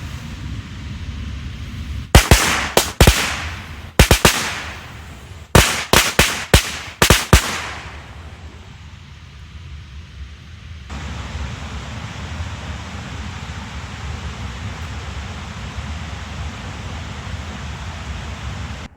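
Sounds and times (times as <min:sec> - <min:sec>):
firecrackers banging: 0:00.0 - 0:09.1.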